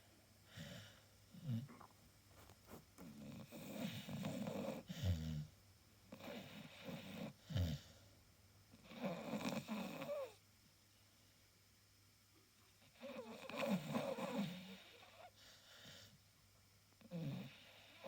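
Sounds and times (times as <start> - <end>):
dog snoring: 0.5 - 5.5, 6.1 - 8.0, 8.7 - 10.4, 12.8 - 16.1, 17.0 - 18.0.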